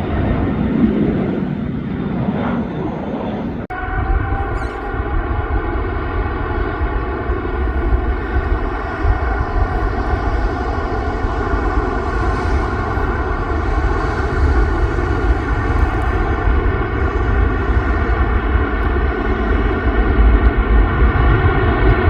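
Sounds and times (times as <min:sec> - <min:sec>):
jet engines at takeoff power: 0:00.0 - 0:22.0.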